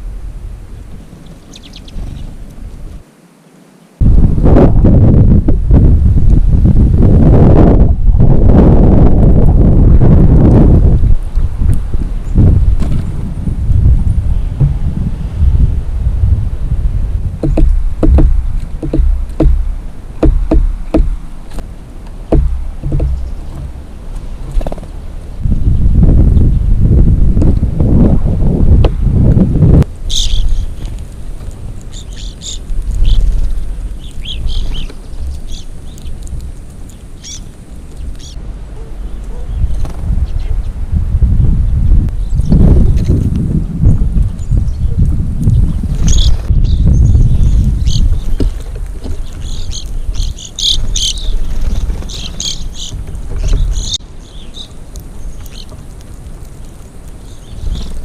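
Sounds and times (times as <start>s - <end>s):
wind rumble on microphone: 0.0s - 3.1s, 4.0s - 58.0s
small birds chirping: 1.0s - 3.0s, 17.4s - 26.7s, 30.0s - 40.8s, 43.8s - 58.0s.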